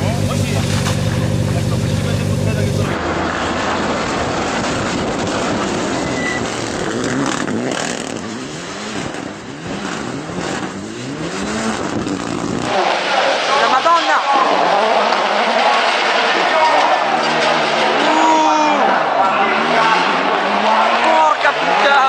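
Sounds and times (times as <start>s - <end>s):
rally car engine revving: 0.0s - 22.0s
tyre and wind noise: 2.8s - 12.8s.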